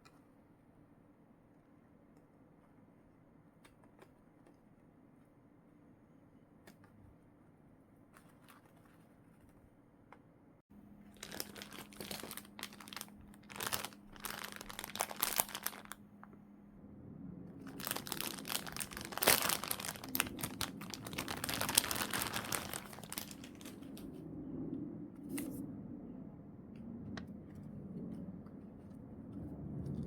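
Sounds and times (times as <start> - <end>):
plastic packaging crinkling: 11.1 - 16.0, 17.7 - 24.1.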